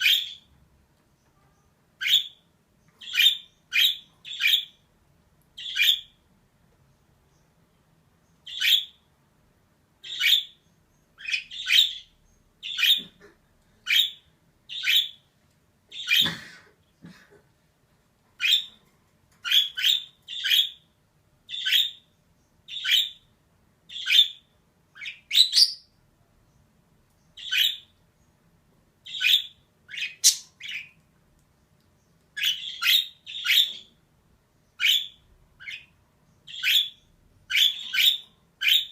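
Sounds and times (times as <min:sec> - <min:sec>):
budgerigar chirping: 0:00.0 - 0:00.5, 0:02.0 - 0:02.4, 0:03.0 - 0:04.8, 0:05.6 - 0:06.2, 0:08.4 - 0:09.0, 0:10.0 - 0:10.6, 0:11.2 - 0:13.2, 0:13.8 - 0:15.2, 0:18.4 - 0:18.8, 0:19.4 - 0:20.8, 0:21.5 - 0:22.0, 0:22.7 - 0:23.3, 0:23.9 - 0:25.9, 0:27.4 - 0:27.9, 0:29.0 - 0:31.0, 0:32.4 - 0:33.9, 0:34.8 - 0:38.9.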